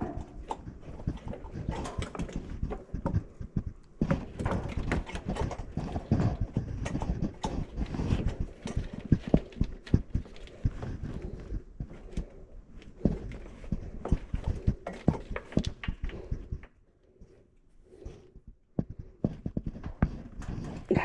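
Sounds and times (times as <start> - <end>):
hand tools and metal parts clunking: 0.0 - 16.5.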